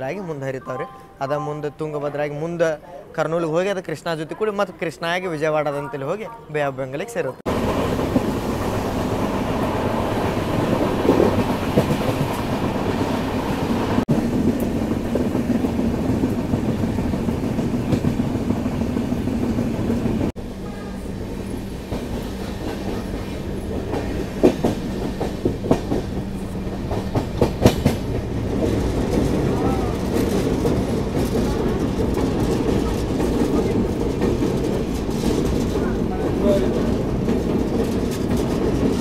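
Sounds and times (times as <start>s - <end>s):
train rumbling and rattling: 7.4s - 39.0s
wheels clacking over rail joints: 7.5s - 20.4s, 21.4s - 39.0s.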